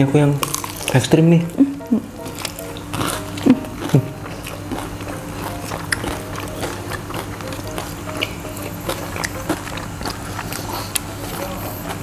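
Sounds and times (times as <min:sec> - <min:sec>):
steady low hum: 0:00.0 - 0:12.0
crunchy chewing: 0:00.3 - 0:12.0
wet mouth clicks: 0:02.4 - 0:12.0.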